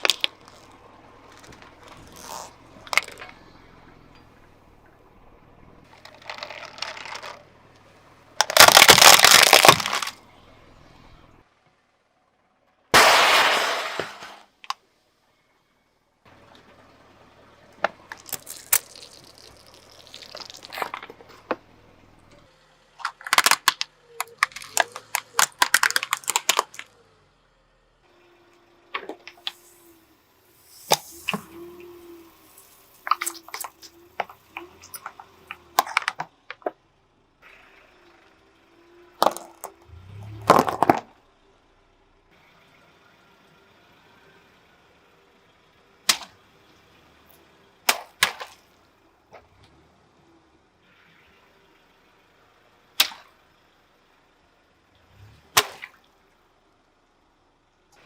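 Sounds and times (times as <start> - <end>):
objects crushed under car tyre: 0.0 - 3.6, 5.9 - 7.4, 8.4 - 10.2, 13.0 - 14.7, 23.0 - 26.9, 29.0 - 36.8, 39.2 - 41.2.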